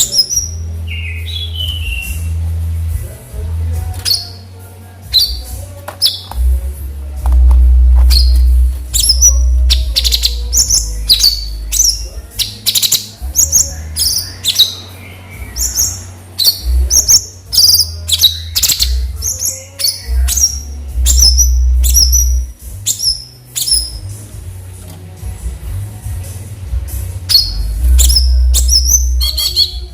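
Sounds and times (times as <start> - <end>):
bird chirping: 0.0 - 2.4, 3.8 - 6.6, 7.3 - 24.2, 27.3 - 29.9
low rumble: 6.4 - 12.3.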